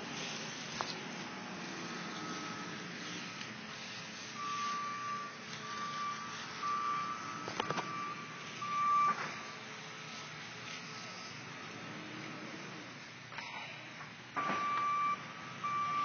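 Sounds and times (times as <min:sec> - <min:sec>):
high electronic beeps: 0:04.4 - 0:09.6, 0:14.4 - 0:16.0.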